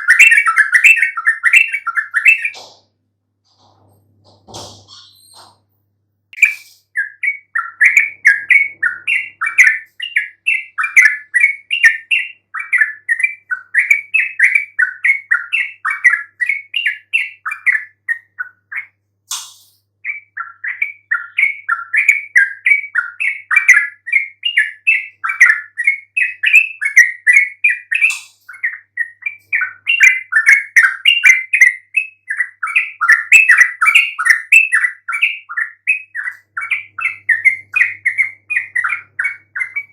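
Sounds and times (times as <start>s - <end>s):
bird chattering song: 0.0s - 2.8s, 3.5s - 5.7s, 6.4s - 39.9s
sharp click: 19.3s - 19.8s.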